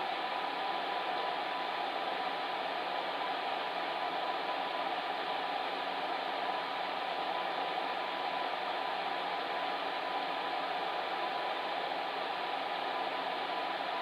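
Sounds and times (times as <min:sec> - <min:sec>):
faint constant hum: 0:00.0 - 0:14.0.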